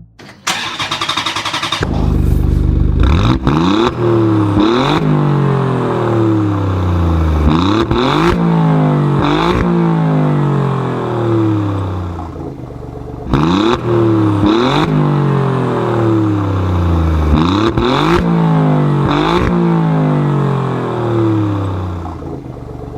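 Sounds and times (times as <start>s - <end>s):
small engine revving: 0.5s - 5.1s.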